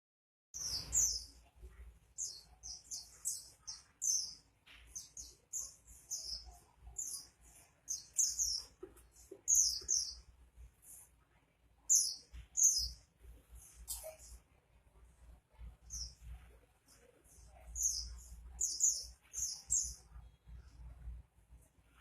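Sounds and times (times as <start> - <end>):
bird twittering song: 0.6 - 10.3, 11.9 - 14.4, 15.8 - 21.0.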